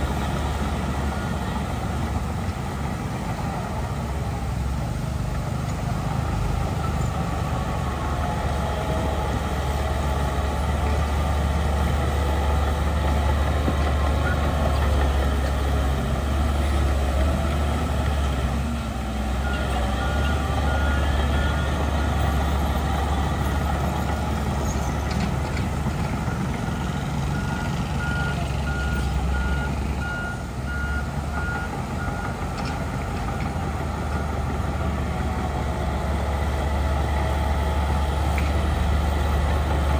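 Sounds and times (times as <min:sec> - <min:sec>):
heavy diesel machinery running: 0:00.0 - 0:39.9
reversing alarm beeping: 0:26.3 - 0:32.4.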